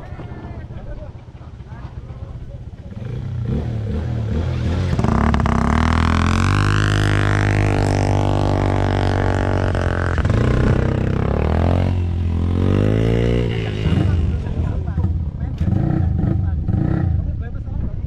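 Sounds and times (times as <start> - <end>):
atv engines droning: 0.0 - 17.9.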